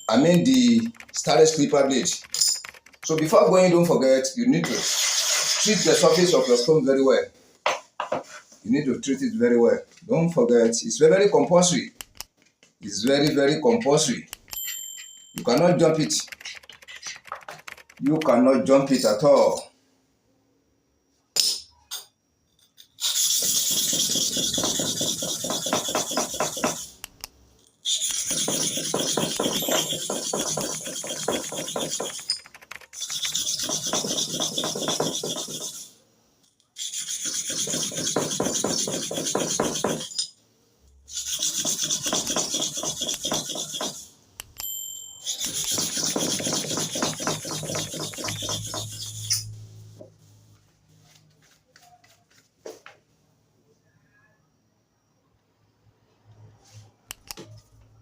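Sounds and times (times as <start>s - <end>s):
blade scraping on sharpening stone: 4.7s - 6.7s, 22.8s - 27.0s, 27.9s - 36.0s, 36.8s - 40.4s, 41.1s - 44.1s, 45.2s - 49.6s.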